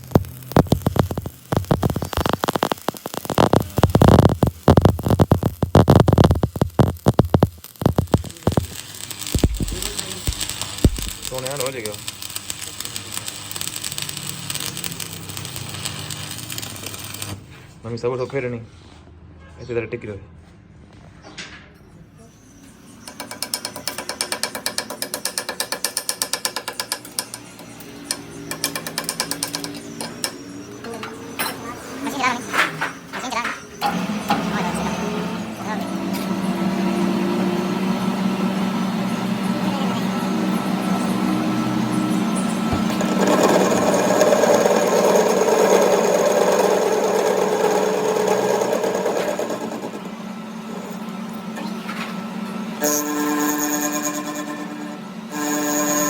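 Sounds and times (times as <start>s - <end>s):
rapid metallic ticking: 0.0s - 17.4s, 23.1s - 30.4s
workshop machine buzzing: 0.0s - 17.8s, 22.4s - 56.0s
steady mechanical hum: 0.0s - 19.2s, 20.1s - 56.0s.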